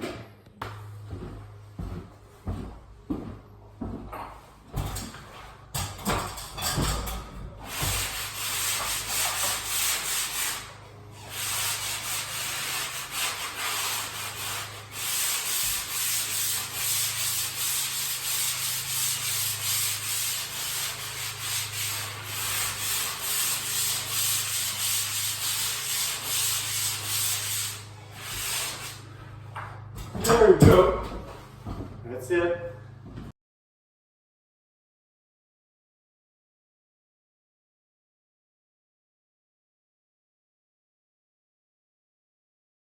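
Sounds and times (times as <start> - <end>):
sanding block scratching drywall: 7.6 - 29.4.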